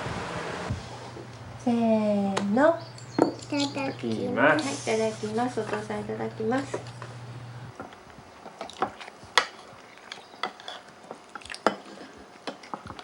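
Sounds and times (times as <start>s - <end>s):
tableware clicking and clinking: 2.8s - 7.2s, 7.8s - 13.0s.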